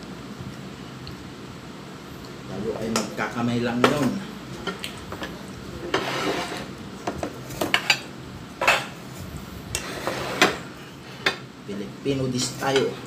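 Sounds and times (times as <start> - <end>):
plates and dishes clinking: 3.8 - 9.0.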